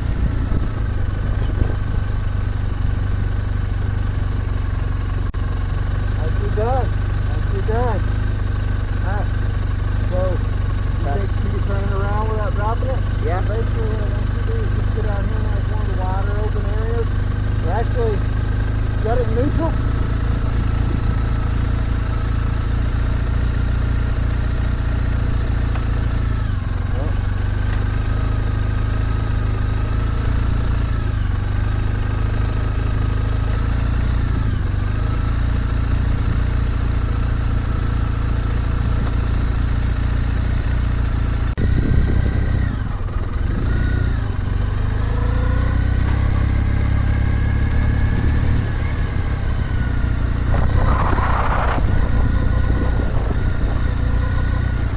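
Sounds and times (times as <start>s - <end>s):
motorcycle engine at low revs: 0.0s - 54.9s.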